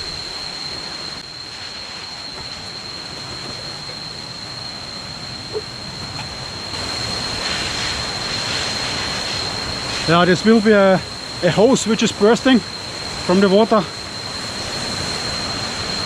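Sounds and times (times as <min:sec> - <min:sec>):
water spraying from burst hose: 0:06.8 - 0:16.0.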